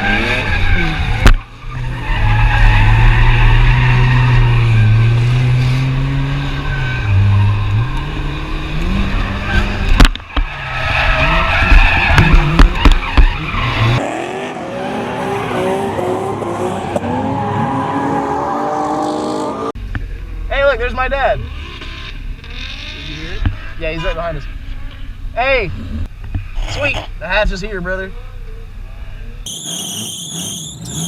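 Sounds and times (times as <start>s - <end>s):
car engines revving: 0.0s - 26.2s, 29.5s - 31.0s
tyres squealing: 29.5s - 31.0s.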